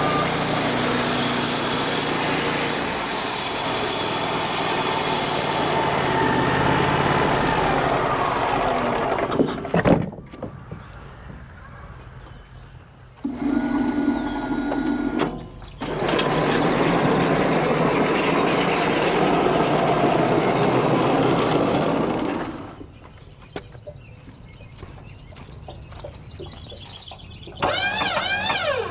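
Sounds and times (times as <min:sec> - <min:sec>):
band sawmill cutting wood: 0:00.0 - 0:09.8, 0:13.2 - 0:22.9, 0:27.6 - 0:28.9.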